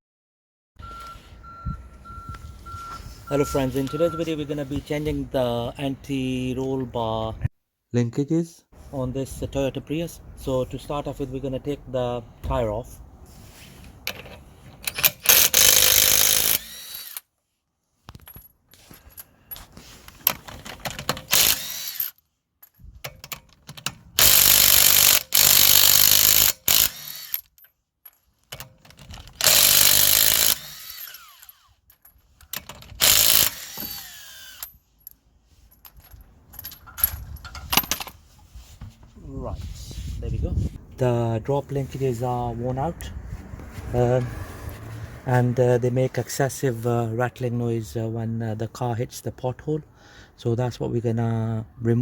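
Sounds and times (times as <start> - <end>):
impact wrench bursts: 14.8 - 17.3, 21.0 - 22.2, 24.1 - 27.5, 29.3 - 31.6, 32.9 - 34.8.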